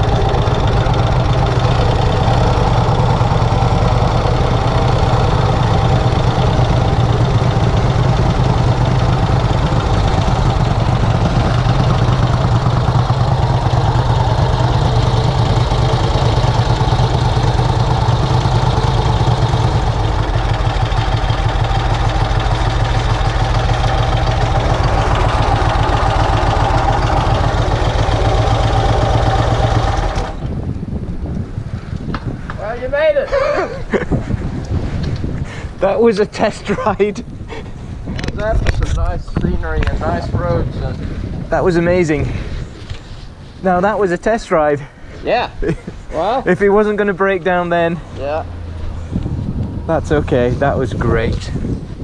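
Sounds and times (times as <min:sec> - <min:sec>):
motorcycle engine idling: 0:00.0 - 0:31.3.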